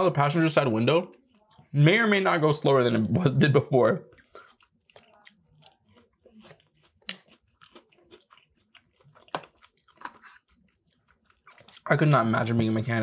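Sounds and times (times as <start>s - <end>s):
wet chewing sounds: 4.0s - 12.1s.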